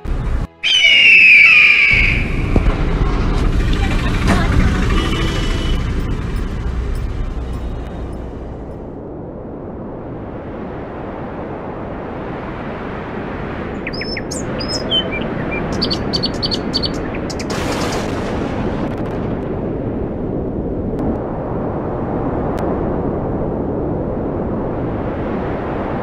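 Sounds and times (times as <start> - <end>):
low rushing noise: 0.0 - 26.0
birds chirping: 0.6 - 2.5, 13.8 - 18.0.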